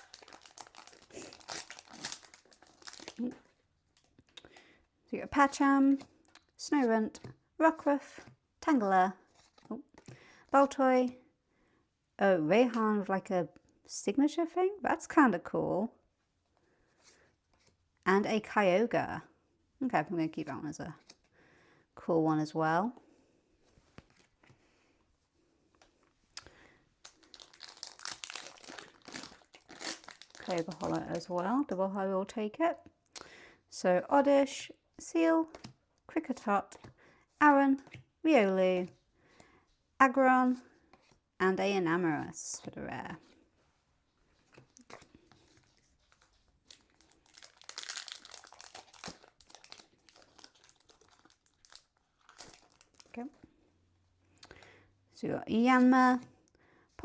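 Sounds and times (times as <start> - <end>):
foil wrapper crinkling and tearing: 0.0 - 4.3, 27.0 - 31.4, 45.6 - 53.2.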